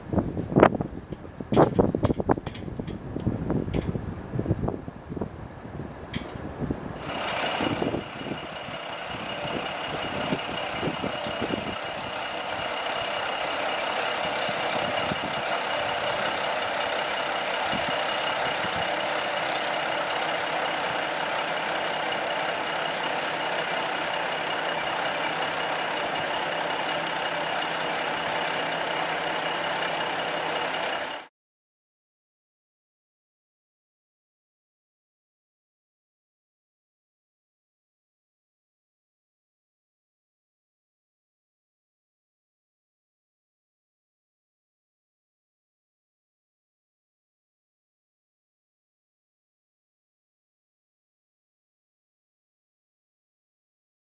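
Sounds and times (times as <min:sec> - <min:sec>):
diesel railcar engine running: 0:00.0 - 0:31.3.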